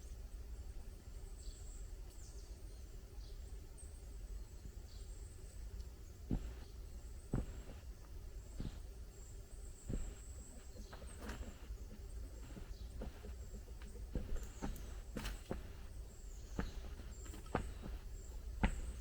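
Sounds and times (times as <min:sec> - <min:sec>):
footsteps on soft ground: 0:06.2 - 0:19.0.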